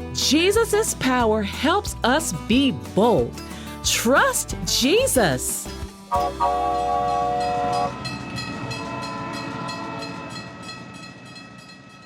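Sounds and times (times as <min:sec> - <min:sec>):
train horn chord: 0:06.1 - 0:08.1.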